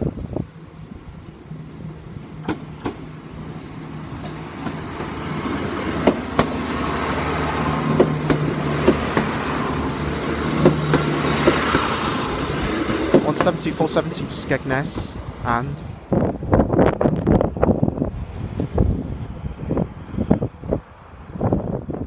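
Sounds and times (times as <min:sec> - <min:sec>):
diesel train engine hum: 0:00.0 - 0:22.0
wheels clacking over rail joints: 0:01.9 - 0:15.1.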